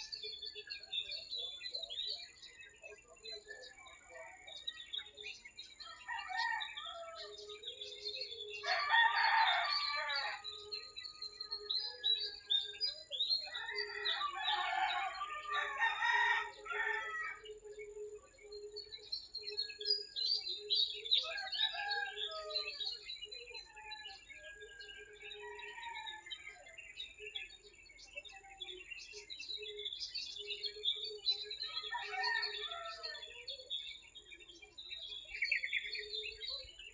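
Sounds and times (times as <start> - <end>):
small birds chirping: 0.0 - 36.9
rooster crowing: 5.8 - 7.4, 8.6 - 10.6, 13.5 - 17.5, 21.2 - 22.8, 31.9 - 33.2.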